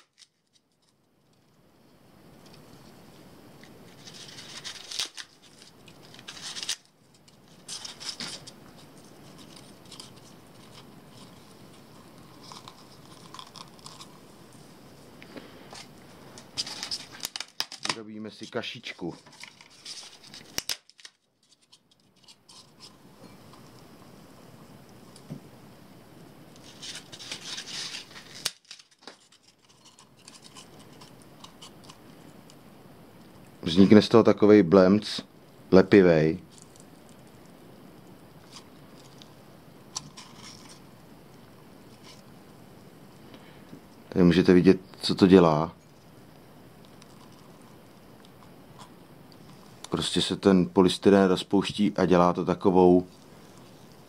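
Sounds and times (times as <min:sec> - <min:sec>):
polystyrene foam crackling: 0:03.8 - 0:21.6, 0:26.6 - 0:30.5
foam crunching by hand: 0:04.1 - 0:06.8.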